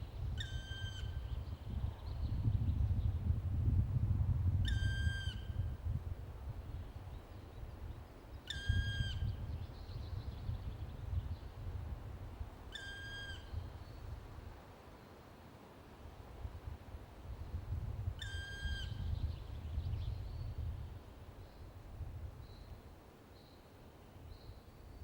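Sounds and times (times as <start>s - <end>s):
woodpecker plaintive call: 8.5s - 9.2s, 12.7s - 13.5s, 18.2s - 19.0s.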